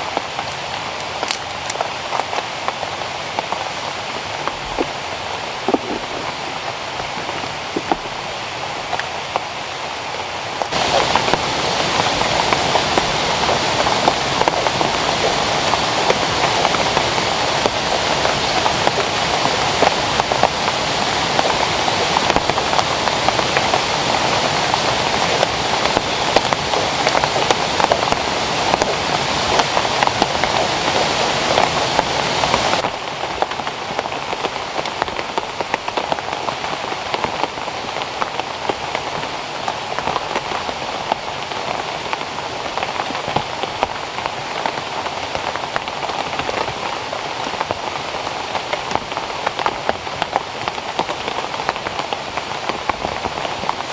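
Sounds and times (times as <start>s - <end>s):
rain patter: 0.0s - 53.9s.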